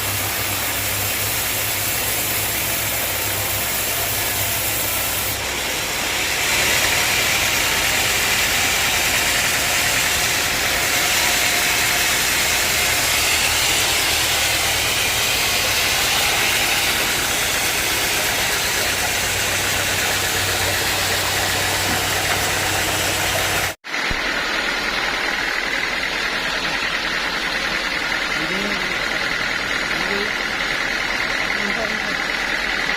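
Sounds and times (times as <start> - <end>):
loud even hiss: 0.0 - 30.6.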